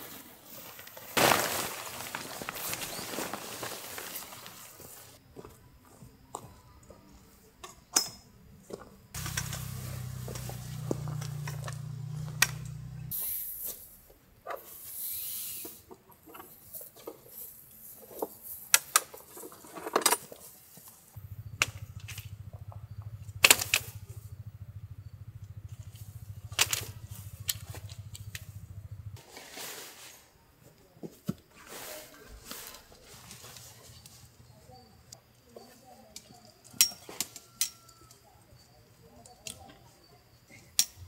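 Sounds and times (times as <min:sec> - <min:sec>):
low steady rumble: 0:09.2 - 0:13.1, 0:21.2 - 0:29.2.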